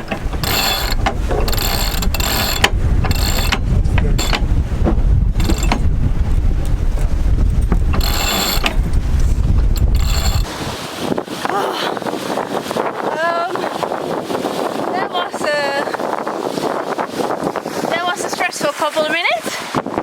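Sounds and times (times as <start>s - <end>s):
winch ratcheting: 0.0s - 4.6s, 5.3s - 5.9s, 7.5s - 10.5s
wind rumble on microphone: 0.0s - 20.0s.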